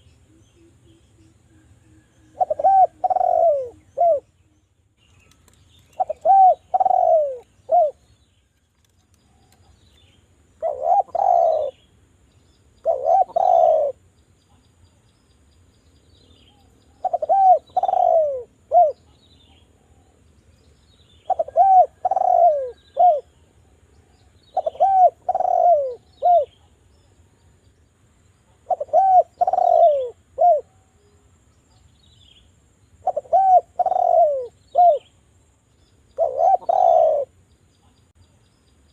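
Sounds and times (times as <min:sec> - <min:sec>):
dove cooing: 0:01.6 - 0:04.4, 0:05.9 - 0:08.1, 0:10.6 - 0:11.8, 0:12.8 - 0:14.0, 0:16.9 - 0:19.2, 0:21.2 - 0:23.3, 0:24.1 - 0:26.7, 0:28.5 - 0:31.1, 0:33.0 - 0:35.1, 0:36.2 - 0:37.4.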